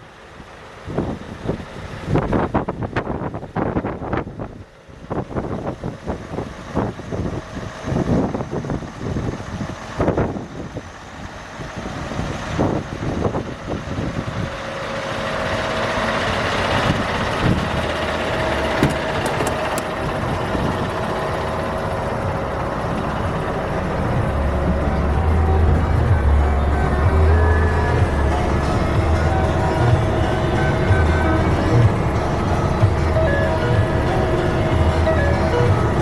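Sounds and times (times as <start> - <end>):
truck diesel engine running: 10.8 - 36.0
wind buffeting microphone: 16.4 - 24.4.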